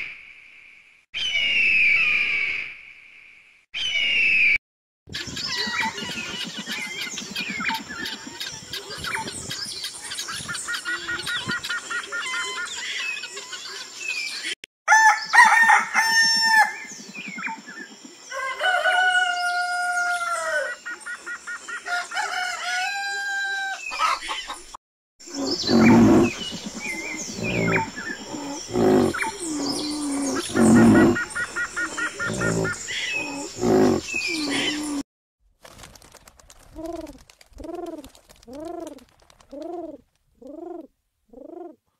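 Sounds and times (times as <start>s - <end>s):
guineafowl calling: 10.7s - 13.8s, 18.4s - 24.6s, 25.3s - 35.0s
rooster crowing: 14.9s - 16.8s, 18.3s - 20.8s, 21.9s - 24.2s
birds chirping: 23.8s - 35.0s
chickens clucking: 23.9s - 24.6s
deep low grunts: 25.3s - 35.0s.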